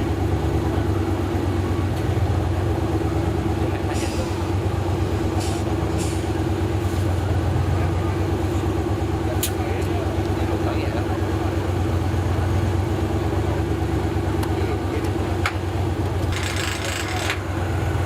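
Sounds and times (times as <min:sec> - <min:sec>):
off-road vehicle engine running: 0:00.0 - 0:18.0
short hisses: 0:05.4 - 0:06.3.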